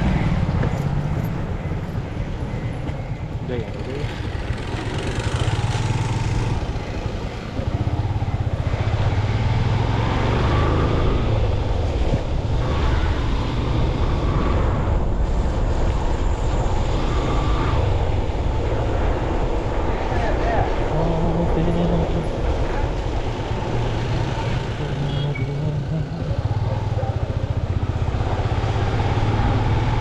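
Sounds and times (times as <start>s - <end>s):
road noise: 0.0s - 30.0s
motorcycle engine running: 0.1s - 10.7s, 21.0s - 30.0s.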